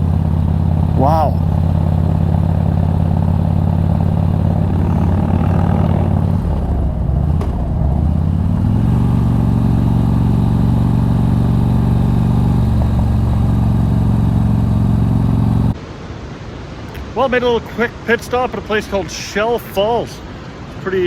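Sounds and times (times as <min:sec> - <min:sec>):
motorcycle engine cruising: 0:00.0 - 0:15.8.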